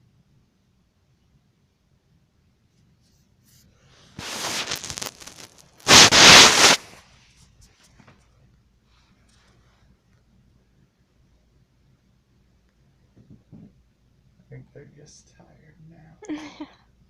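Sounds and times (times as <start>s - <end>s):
fabric rustling: 4.2s - 7.0s.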